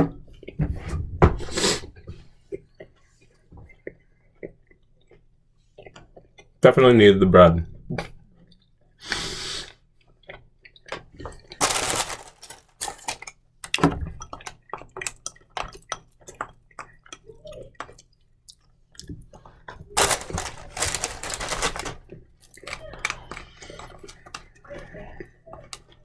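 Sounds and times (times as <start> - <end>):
rustling: 11.6 - 13.2, 20.0 - 22.0.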